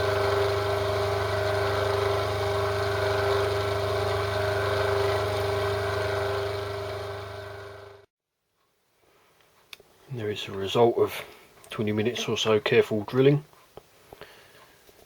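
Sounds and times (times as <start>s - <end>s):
lathe motor hum: 0.0s - 8.1s.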